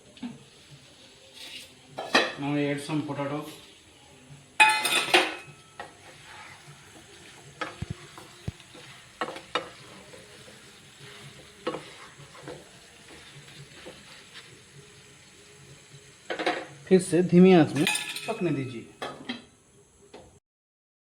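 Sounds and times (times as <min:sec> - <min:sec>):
faint sizzle: 0:00.0 - 0:20.4
spatula scraping a pan: 0:00.2 - 0:02.5, 0:04.6 - 0:16.8.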